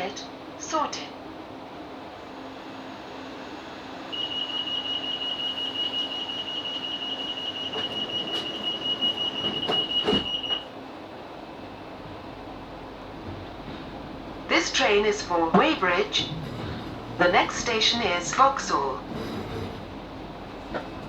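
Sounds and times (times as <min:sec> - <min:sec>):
low train hum: 0:00.0 - 0:21.0
rapidly pulsing warning beep: 0:04.1 - 0:10.7
train doors knocking shut: 0:06.1 - 0:10.7, 0:11.6 - 0:21.0.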